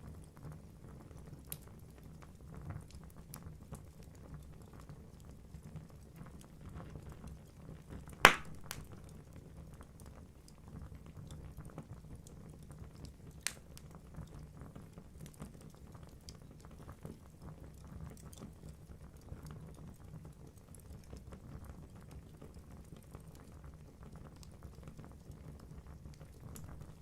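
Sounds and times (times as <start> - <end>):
sharp fire pop: 8.3 - 9.1, 26.6 - 27.0
burning logs crackling: 8.3 - 9.3, 26.2 - 27.0.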